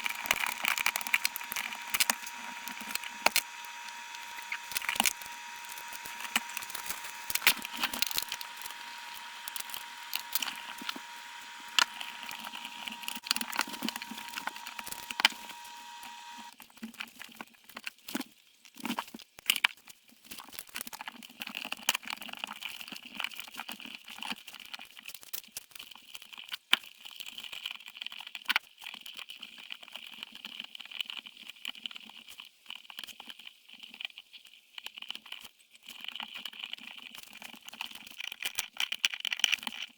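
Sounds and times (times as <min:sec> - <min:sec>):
steady high hum: 0:00.0 - 0:16.5.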